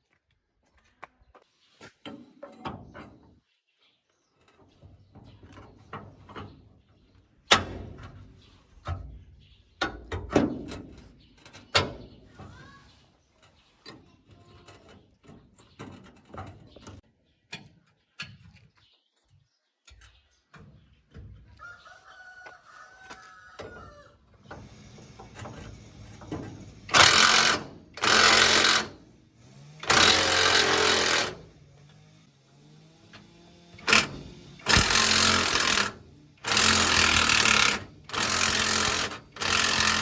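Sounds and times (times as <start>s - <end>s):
rooster crowing: 21.6s - 24.2s
loud noisy bursts: 26.8s - 29.0s, 29.6s - 31.6s, 33.7s - 40.0s.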